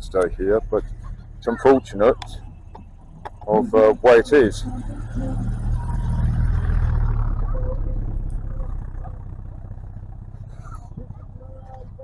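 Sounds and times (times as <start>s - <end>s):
car engine rumble: 0.0s - 12.0s.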